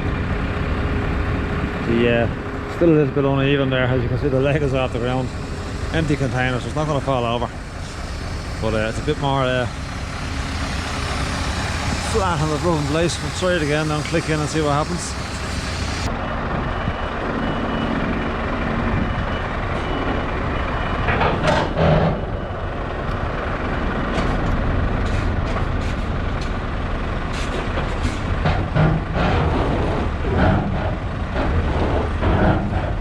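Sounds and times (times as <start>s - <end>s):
truck engine running: 0.0s - 33.0s
reversing beeper: 3.8s - 22.9s.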